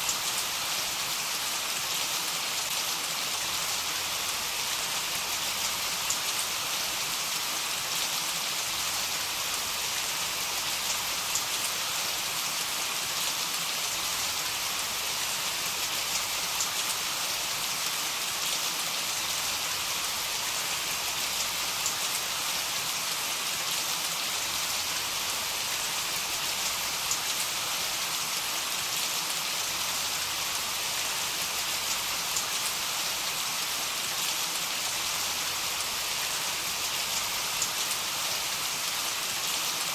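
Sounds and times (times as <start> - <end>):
heavy rain falling: 17.7 - 39.9.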